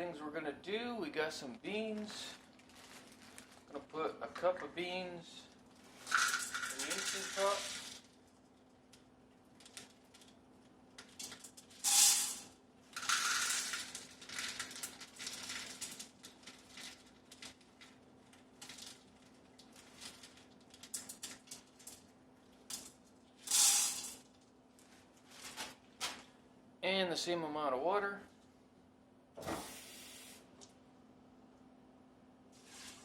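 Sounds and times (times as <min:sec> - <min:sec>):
dry beans rattling into a pot: 0:05.9 - 0:08.3, 0:08.9 - 0:24.5.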